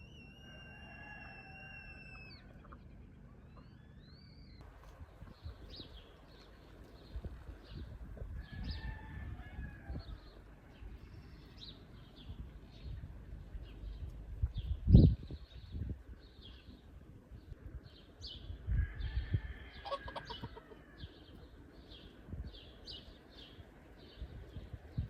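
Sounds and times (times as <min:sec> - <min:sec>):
low outdoor rumble: 0:01.3 - 0:19.8
small birds chirping: 0:02.2 - 0:08.9.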